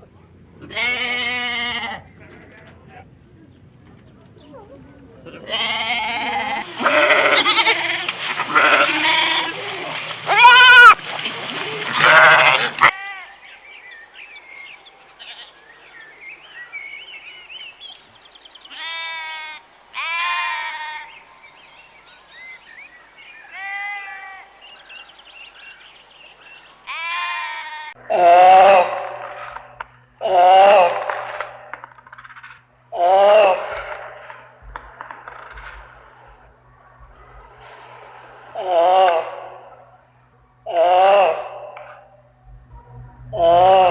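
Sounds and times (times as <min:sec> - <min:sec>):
livestock bleating: 0:00.6 - 0:03.1, 0:05.3 - 0:09.7, 0:10.3 - 0:11.0, 0:12.0 - 0:13.6, 0:15.2 - 0:15.9, 0:18.6 - 0:21.8, 0:23.2 - 0:25.0, 0:26.9 - 0:29.6, 0:40.7 - 0:42.1
faint chirping: 0:13.2 - 0:27.4.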